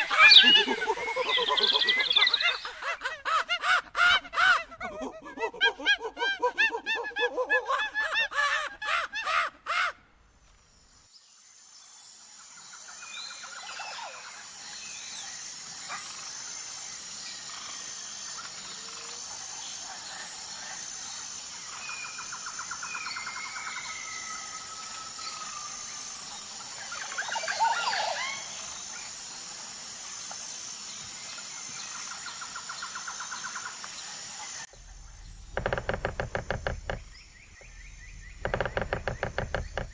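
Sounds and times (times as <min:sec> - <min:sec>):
birds chirping: 0:00.0 - 0:03.0, 0:34.7 - 0:39.9
steady high hiss: 0:00.0 - 0:03.0, 0:10.8 - 0:39.9.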